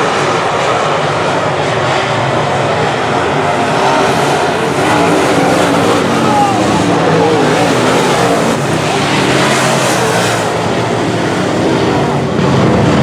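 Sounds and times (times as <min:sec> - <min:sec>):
race car engines at full throttle: 0:00.0 - 0:13.0.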